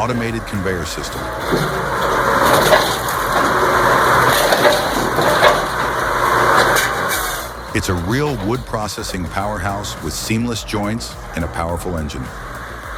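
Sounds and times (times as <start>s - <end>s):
wood crunching and splintering: 1.1s - 7.6s.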